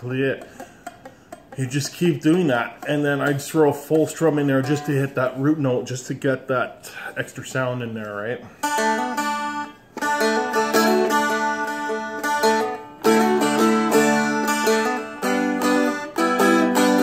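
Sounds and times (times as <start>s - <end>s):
acoustic guitar picked and strummed: 1.2s - 5.5s, 8.4s - 17.0s.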